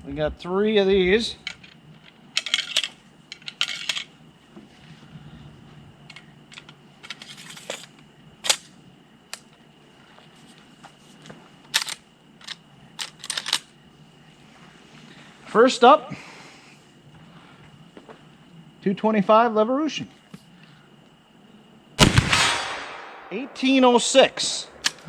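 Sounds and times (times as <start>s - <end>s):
cartridges clicking and clattering: 1.4s - 4.1s, 6.1s - 8.7s, 11.7s - 13.7s, 22.0s - 25.0s.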